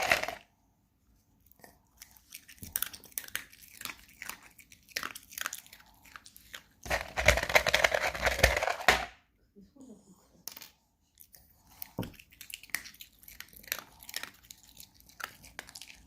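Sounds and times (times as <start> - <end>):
dog crunching food: 0.0 - 0.4, 1.6 - 8.9, 11.2 - 16.0.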